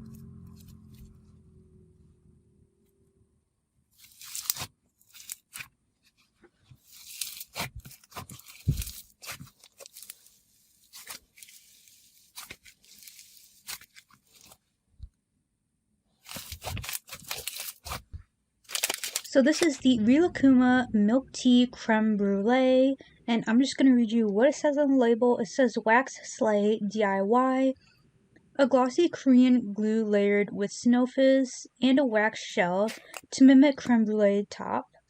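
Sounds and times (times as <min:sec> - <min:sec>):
slime crunching and popping: 0:04.0 - 0:05.7, 0:06.8 - 0:14.6, 0:16.2 - 0:18.1, 0:18.7 - 0:19.8.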